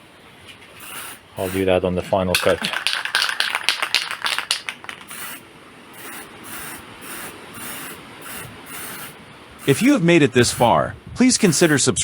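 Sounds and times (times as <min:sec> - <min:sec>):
spray can rattling: 0:00.8 - 0:01.7, 0:02.3 - 0:05.4, 0:06.0 - 0:10.7, 0:11.4 - 0:11.8
spray paint hissing bursts: 0:00.8 - 0:01.7, 0:02.4 - 0:11.9.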